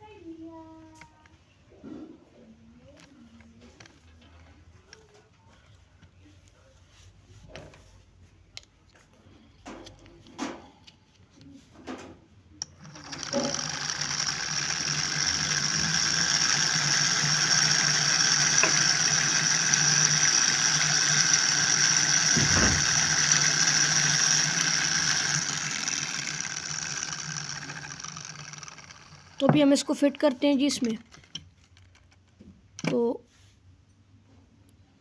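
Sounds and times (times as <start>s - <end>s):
small motor whirring through gears: 12.6s - 32.0s.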